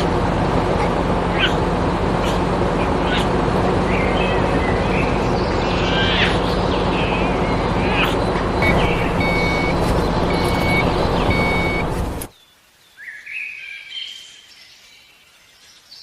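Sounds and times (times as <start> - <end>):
tractor engine humming: 0.0 - 12.3.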